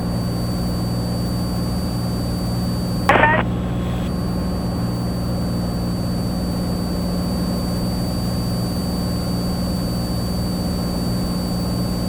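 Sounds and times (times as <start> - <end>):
airplane engine and propeller drone: 0.0 - 12.0.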